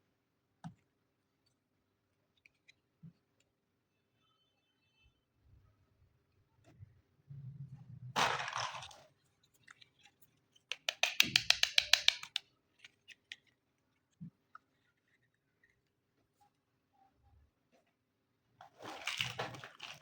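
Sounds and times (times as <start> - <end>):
sharp plastic clicks: 10.6 - 13.5
plastic scraping rustle: 18.6 - 20.0.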